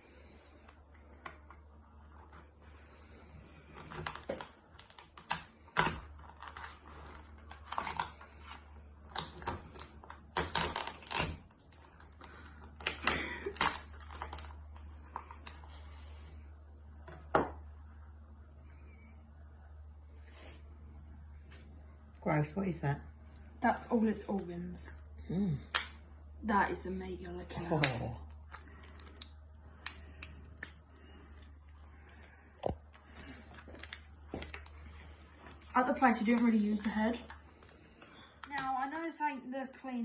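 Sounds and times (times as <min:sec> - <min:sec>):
lobster shell cracking: 0:09.1 - 0:11.5.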